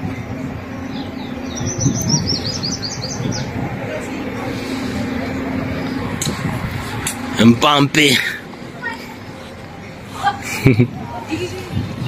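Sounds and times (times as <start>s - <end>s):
murmur of voices: 0.0s - 12.0s
bird chirping: 0.7s - 3.6s.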